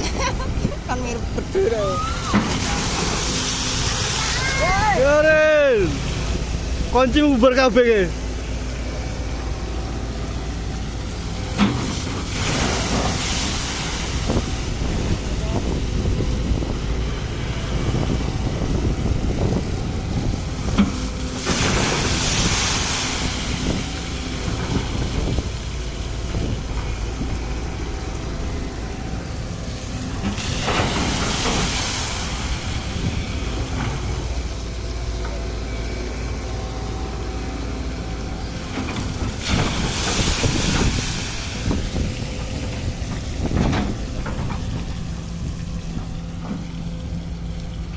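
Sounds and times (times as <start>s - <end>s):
excavator diesel engine running: 0.0s - 47.9s
hiss bursts: 29.6s - 34.1s.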